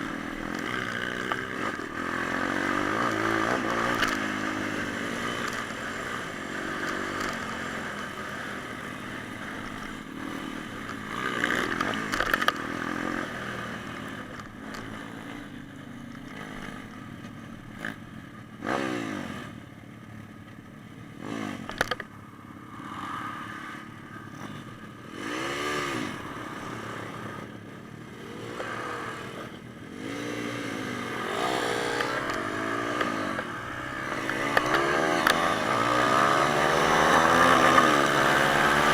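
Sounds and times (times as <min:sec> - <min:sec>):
pit bike engines revving: 0:00.0 - 0:19.6, 0:21.1 - 0:38.9
sharp clacks: 0:34.1 - 0:38.9.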